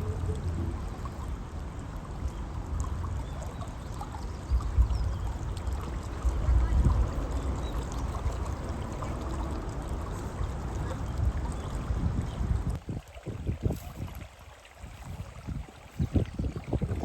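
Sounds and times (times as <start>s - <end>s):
low rumbles: 0.0s - 3.6s, 4.2s - 12.8s
river water flowing: 0.0s - 17.0s.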